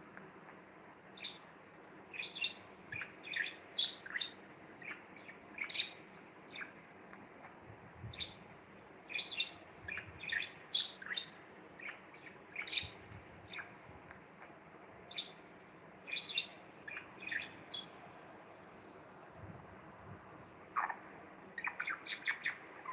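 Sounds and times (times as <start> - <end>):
budgerigar chirping: 2.1 - 6.8, 9.1 - 13.7, 16.1 - 17.9, 20.8 - 21.0, 21.6 - 22.9.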